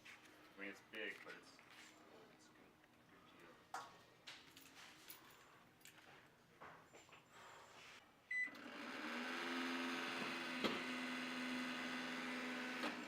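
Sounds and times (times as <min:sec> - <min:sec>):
microwave keypad beep: 0:08.3 - 0:08.6
microwave oven humming: 0:08.3 - 0:13.0.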